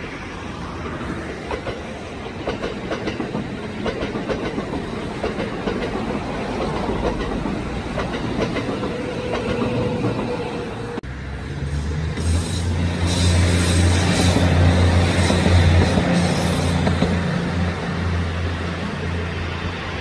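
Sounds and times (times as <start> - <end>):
electric train passing: 0.0 - 20.0
wheels clicking over rail joints: 0.9 - 10.6.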